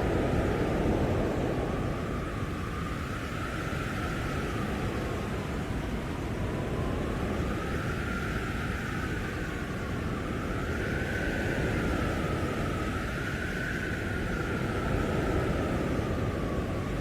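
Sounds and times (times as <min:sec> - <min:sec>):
blizzard wind rushing: 0:00.0 - 0:17.0
wind howling whistle: 0:00.0 - 0:17.0.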